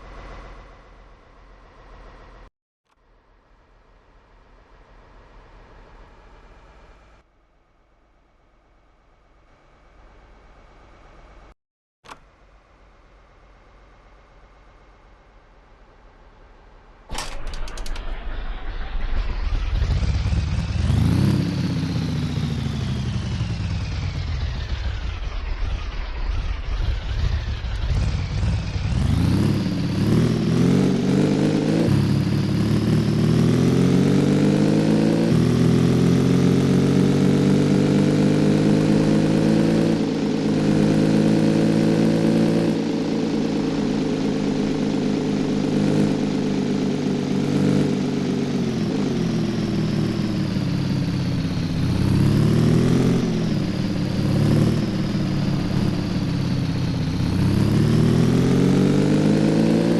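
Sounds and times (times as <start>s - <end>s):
motorcycle engine accelerating: 17.1s - 59.9s.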